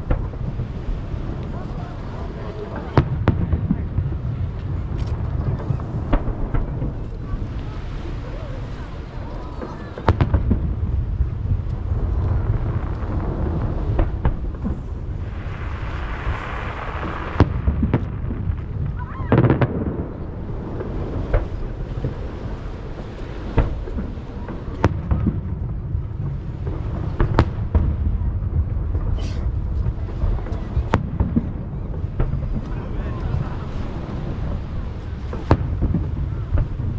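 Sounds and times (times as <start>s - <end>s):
crackling hiss: 0.0s - 18.9s
low rumble of echoing booms: 0.0s - 32.7s.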